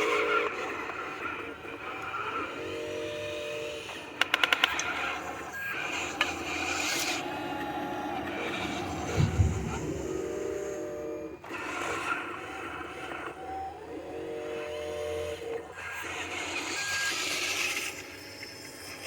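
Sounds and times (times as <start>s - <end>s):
dump truck engine running: 7.2s - 11.4s.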